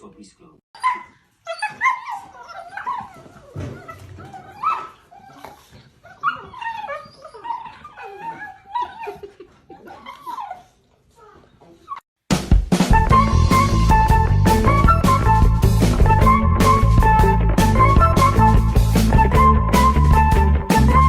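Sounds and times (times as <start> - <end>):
dog whining and yipping: 0.8 - 12.0.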